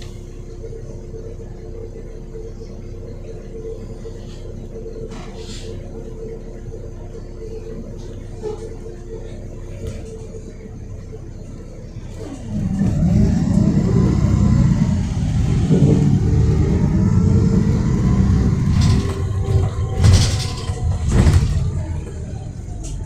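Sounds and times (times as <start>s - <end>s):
bus diesel engine pulling away: 2.4s - 7.1s, 11.7s - 23.0s.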